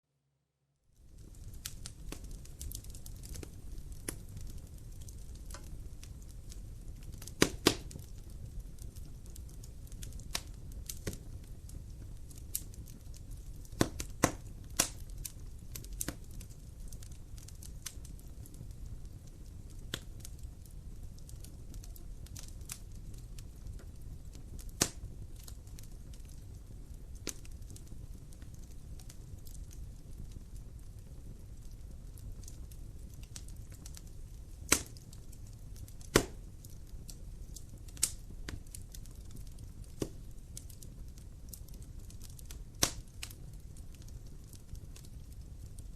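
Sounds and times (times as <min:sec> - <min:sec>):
fire crackling in a fireplace: 0:00.7 - 0:45.9.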